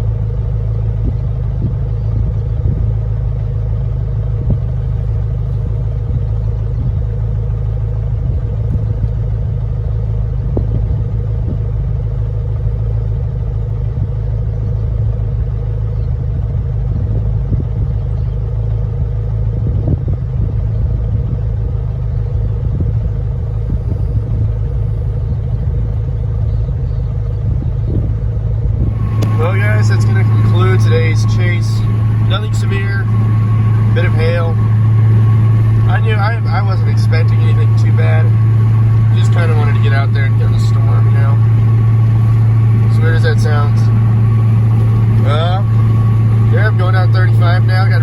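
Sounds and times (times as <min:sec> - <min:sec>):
car interior road rumble: 0:22.9 - 0:48.0
faint steady hum: 0:27.9 - 0:48.0.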